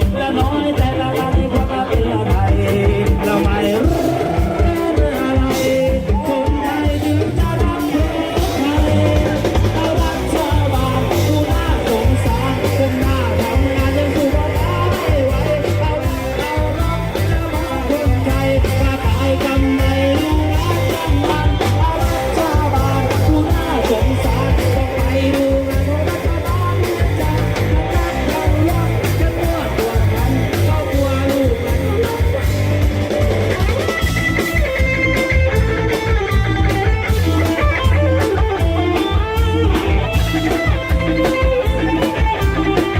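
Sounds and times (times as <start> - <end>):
person singing: 0.0 - 32.8
drum kit: 0.0 - 42.9
electric guitar: 0.0 - 42.9
heavy bass beat: 0.0 - 42.9.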